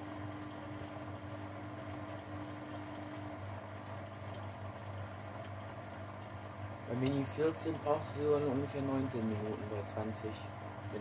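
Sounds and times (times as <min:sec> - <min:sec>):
washing machine humming: 0:00.0 - 0:11.0.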